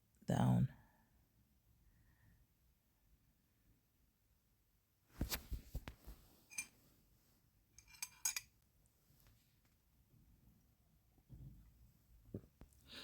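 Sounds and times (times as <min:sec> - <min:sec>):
small tools clicking and clinking: 0:06.5 - 0:06.7, 0:07.8 - 0:08.5.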